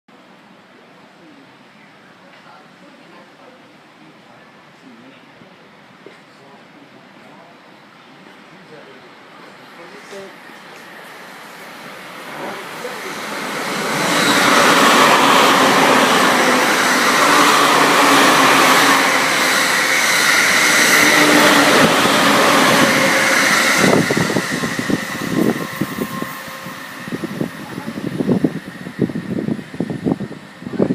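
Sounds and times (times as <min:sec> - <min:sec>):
electric train running noise: 0:10.2 - 0:30.9
steady tones: 0:12.0 - 0:29.8.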